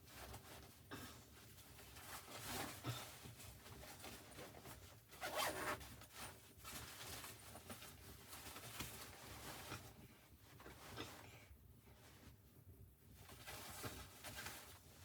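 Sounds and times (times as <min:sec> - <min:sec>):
zipper being pulled: 0:05.2 - 0:05.8.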